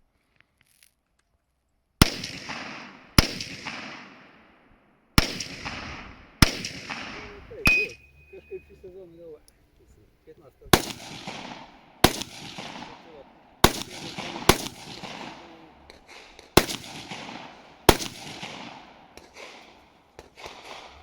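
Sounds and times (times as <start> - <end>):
rifle shots with long echo: 2.0 - 8.0, 10.7 - 21.0.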